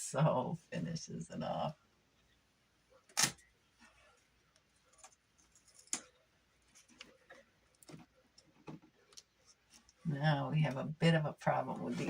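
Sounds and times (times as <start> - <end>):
faint clicks and taps: 3.8 - 10.0.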